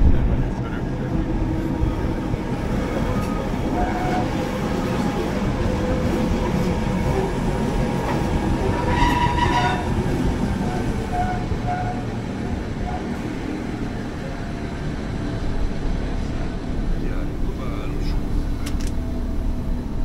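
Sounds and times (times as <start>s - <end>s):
train wheels rumbling on rails: 0.0s - 20.0s
high wheel squeal: 8.7s - 10.0s.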